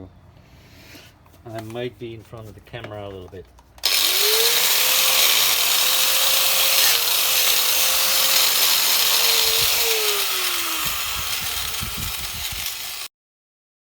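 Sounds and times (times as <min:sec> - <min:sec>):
angle grinder motor whine: 0:03.8 - 0:13.1.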